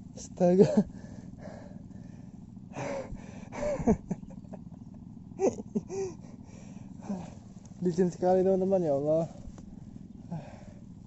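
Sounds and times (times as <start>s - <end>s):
man grunting and gasping: 7.0s - 7.4s.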